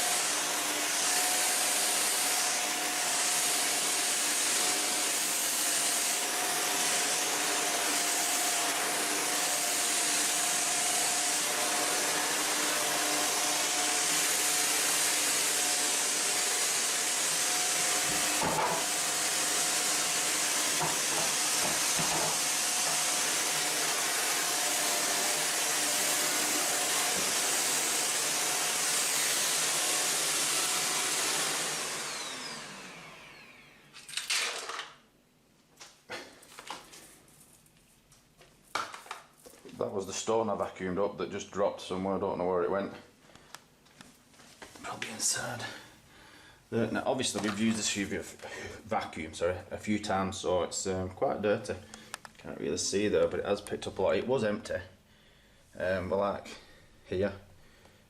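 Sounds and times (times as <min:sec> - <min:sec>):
vacuum cleaner running: 0:00.0 - 0:34.8, 0:44.9 - 0:45.9, 0:46.8 - 0:48.9.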